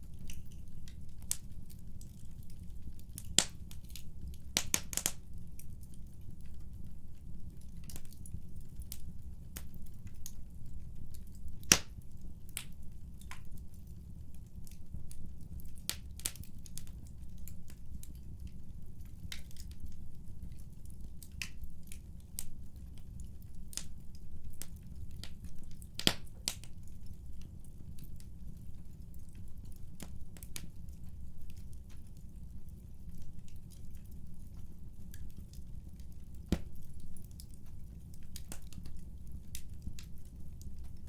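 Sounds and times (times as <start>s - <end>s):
wood fire crackling: 0.0s - 41.0s.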